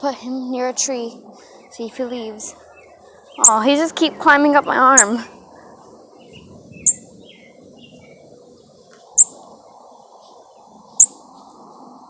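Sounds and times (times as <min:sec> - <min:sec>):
outdoor hum: 0:00.0 - 0:11.6
faint bird chirps: 0:01.1 - 0:11.4
bird chirping sharply: 0:02.5 - 0:08.2.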